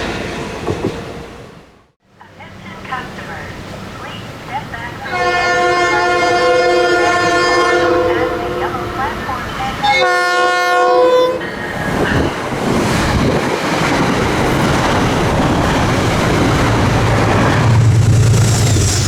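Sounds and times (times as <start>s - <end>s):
train wheel and rail noise: 0.0s - 19.0s
train horn chord: 5.0s - 11.4s.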